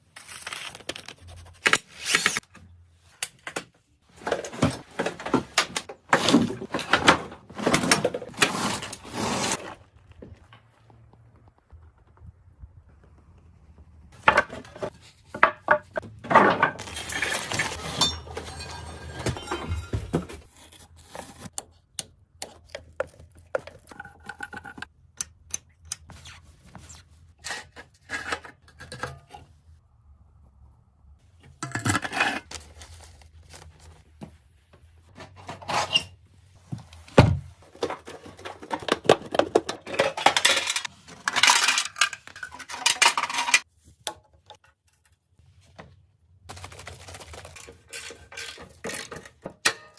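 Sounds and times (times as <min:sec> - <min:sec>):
metal tools clinking and scraping: 0:16.3 - 0:20.5, 0:39.7 - 0:43.7.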